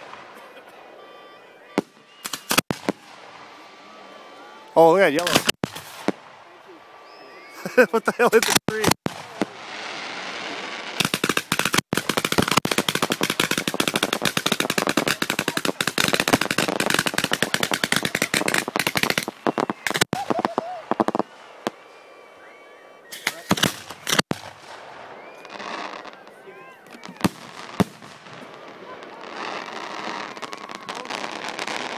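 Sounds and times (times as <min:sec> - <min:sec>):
fireworks volley: 0:00.0 - 0:31.9
loud firework bangs: 0:01.7 - 0:03.6, 0:05.2 - 0:07.0, 0:08.4 - 0:21.8, 0:23.2 - 0:26.1, 0:27.0 - 0:31.9.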